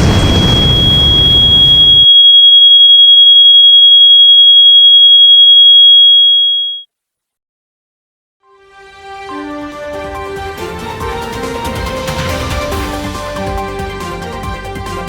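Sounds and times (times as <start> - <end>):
train crash: 0.0 - 2.0, 11.6 - 13.4
high-pitched ringing tone: 0.0 - 6.9.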